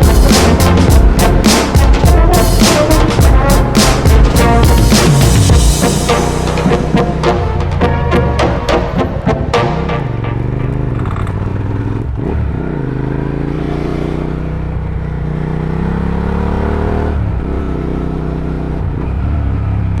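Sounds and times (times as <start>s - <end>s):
motorcycle engine running: 8.9s - 17.8s.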